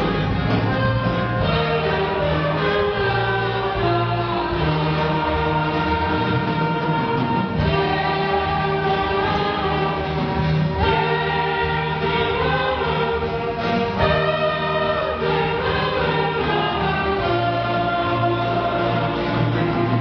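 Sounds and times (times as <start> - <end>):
orchestra playing a hymn: 0.0 - 20.0.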